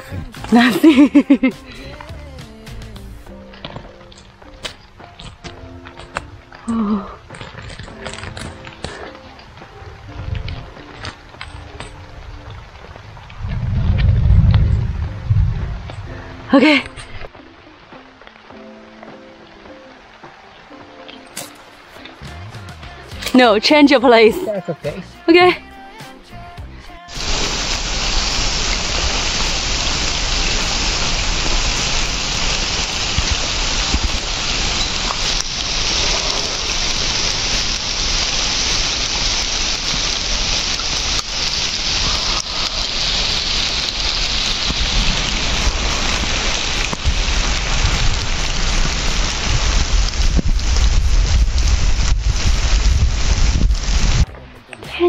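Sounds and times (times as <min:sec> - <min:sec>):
heavy rain falling: 0:00.0 - 0:25.0, 0:27.1 - 0:54.3
low rumble: 0:12.2 - 0:16.6.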